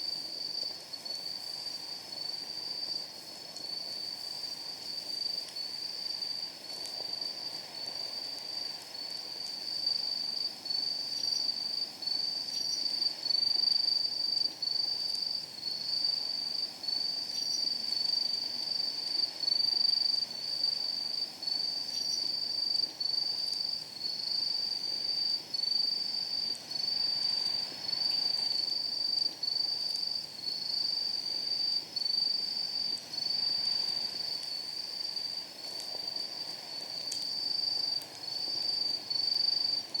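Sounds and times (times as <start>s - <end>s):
faint low hiss: 0.0s - 40.0s
wood fire crackling: 3.1s - 9.7s, 32.8s - 40.0s
insect high-pitched trill: 9.9s - 14.0s, 14.7s - 35.4s.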